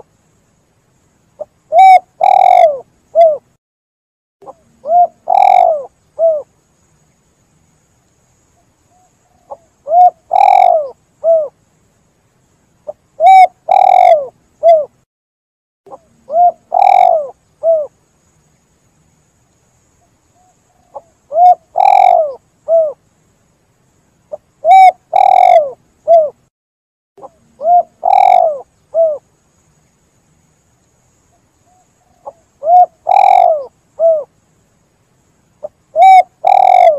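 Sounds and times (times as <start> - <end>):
dove cooing: 1.4 - 3.5, 4.4 - 6.5, 9.0 - 11.6, 12.9 - 15.0, 15.9 - 17.9, 20.4 - 23.0, 24.3 - 26.4, 27.2 - 29.2, 31.7 - 34.3, 35.6 - 36.9.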